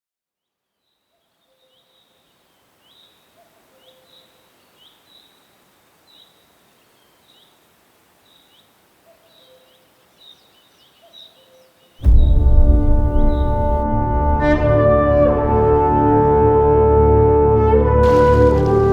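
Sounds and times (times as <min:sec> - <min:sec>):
small bird chirping: 0:00.4 - 0:12.0
low bird calls: 0:00.8 - 0:12.0.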